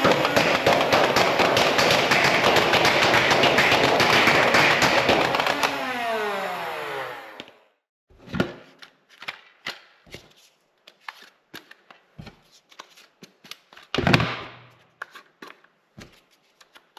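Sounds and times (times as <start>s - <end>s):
whirring motor: 5.4s - 7.6s.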